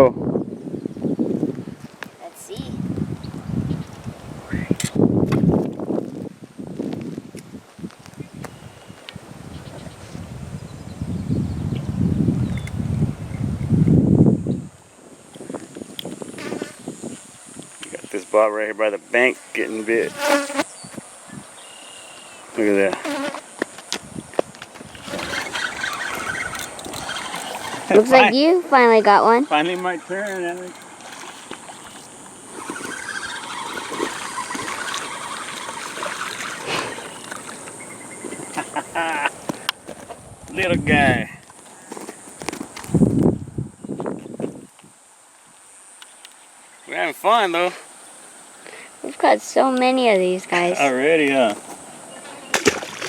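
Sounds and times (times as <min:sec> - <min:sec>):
wind buffeting microphone: 0:00.0 - 0:18.1, 0:23.9 - 0:45.0
fishing reel whirring: 0:24.9 - 0:39.3.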